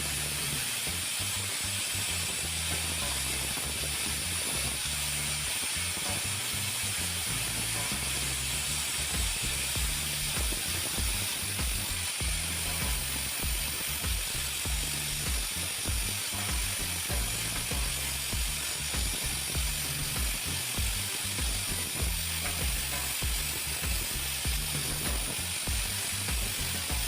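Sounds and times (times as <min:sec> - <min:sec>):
music with bass beat: 0:00.0 - 0:27.0
steady hiss: 0:00.0 - 0:27.0.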